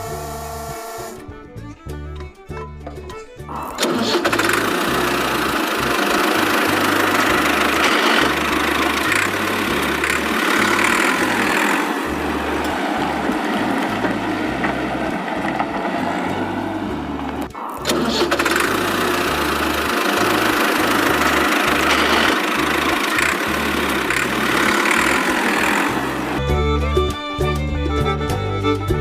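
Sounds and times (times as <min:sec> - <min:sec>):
background music with bass line: 0:00.0 - 0:25.2, 0:25.9 - 0:29.0
tractor engine running: 0:00.0 - 0:29.0.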